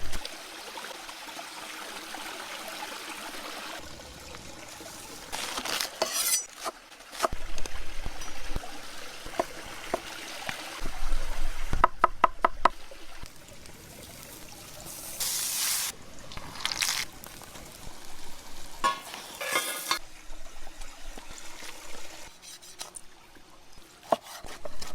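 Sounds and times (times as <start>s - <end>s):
liquid pouring and splashing: 12.7s - 23.2s.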